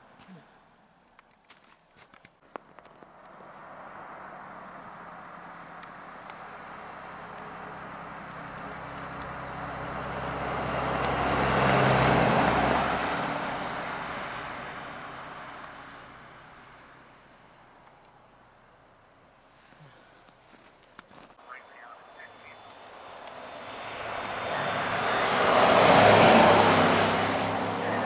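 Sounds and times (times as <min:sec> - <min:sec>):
vehicle driving past: 0:02.9 - 0:16.8, 0:21.5 - 0:28.0.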